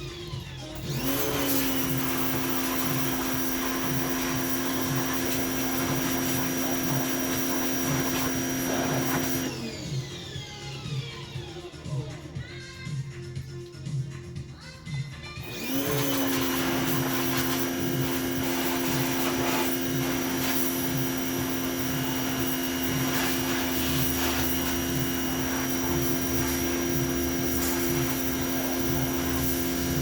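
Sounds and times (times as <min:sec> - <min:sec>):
pressure washer whine: 0:00.6 - 0:11.5, 0:15.4 - 0:30.0
water spray hissing: 0:01.0 - 0:09.5, 0:15.5 - 0:30.0.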